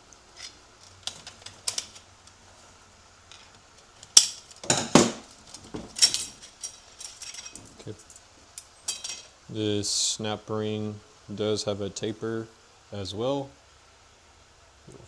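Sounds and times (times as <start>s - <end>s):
metal clanking on metal: 0.4s - 2.0s, 4.0s - 9.3s
metallic clicks and clinks: 0.4s - 2.0s, 3.3s - 9.3s.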